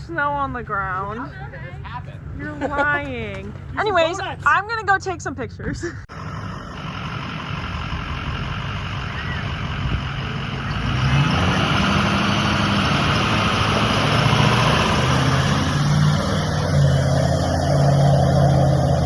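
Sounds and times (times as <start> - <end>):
truck engine humming: 0.0 - 19.0.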